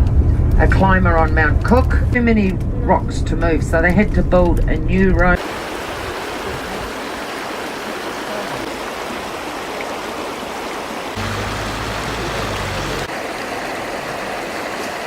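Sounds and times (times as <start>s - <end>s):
fast-flowing water rushing: 5.4s - 15.0s.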